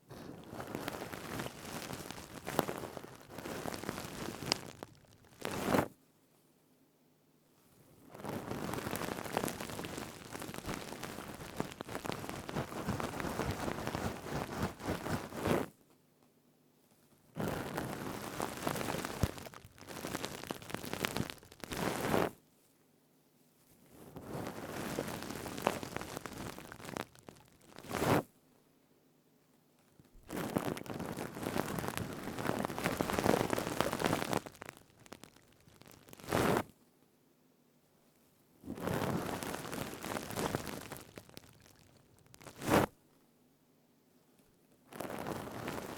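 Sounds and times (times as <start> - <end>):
steel scrubber crinkling: 0.1 - 5.9, 8.2 - 15.2, 17.6 - 22.3, 24.2 - 28.2, 30.3 - 36.6, 38.8 - 42.9.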